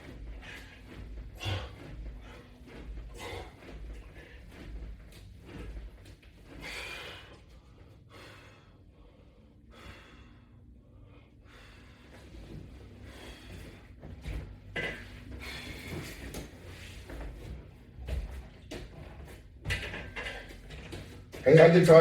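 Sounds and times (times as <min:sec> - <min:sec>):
person gasping breaths: 0:00.4 - 0:02.5, 0:03.1 - 0:04.4, 0:06.6 - 0:12.2.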